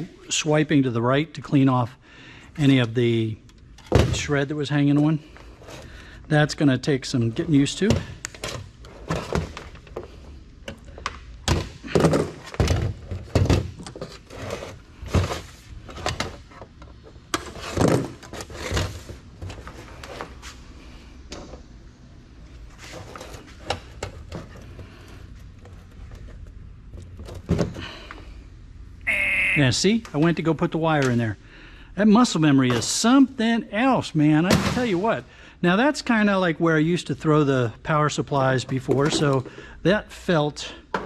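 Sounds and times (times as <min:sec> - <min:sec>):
computer parts clattering into bins: 0:17.4 - 0:20.0.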